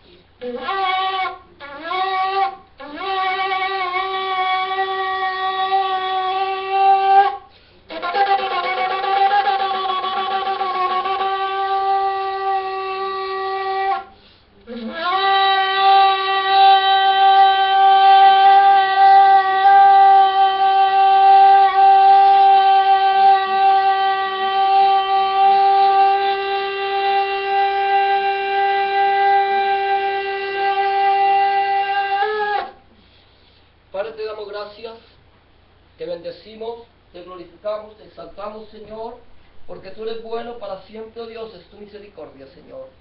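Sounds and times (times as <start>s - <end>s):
person taking a breath: 7.5s - 7.9s, 14.1s - 14.6s, 32.9s - 33.8s.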